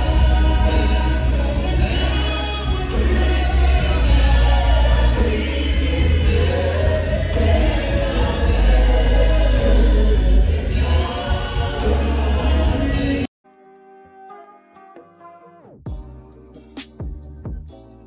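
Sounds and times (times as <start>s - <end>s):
choir singing: 0.0s - 13.3s
strong steady bass: 0.0s - 13.3s.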